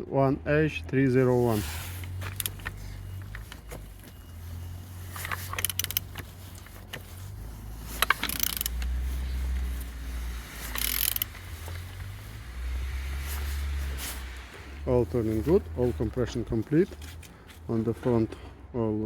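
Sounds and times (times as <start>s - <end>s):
engine being turned by hand: 1.1s - 18.4s
metallic clicks and rattling: 5.1s - 7.2s, 7.9s - 9.0s, 10.5s - 12.0s.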